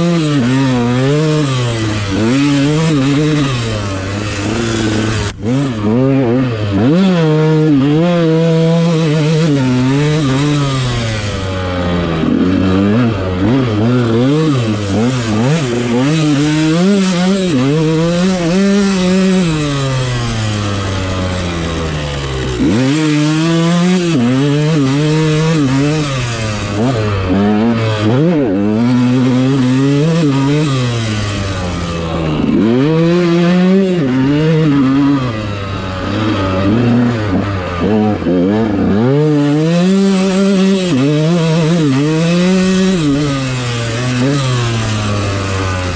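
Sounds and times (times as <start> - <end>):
dirt bike engine revving: 0.0 - 45.9.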